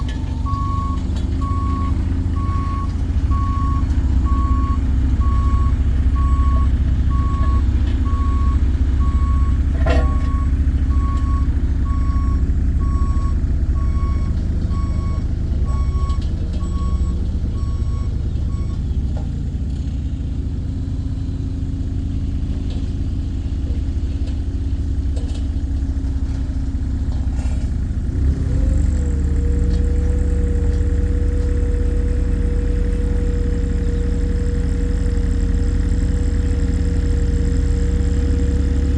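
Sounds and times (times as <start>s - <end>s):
reversing alarm beeping: 0.0s - 18.8s
road roller engine running: 0.0s - 38.9s.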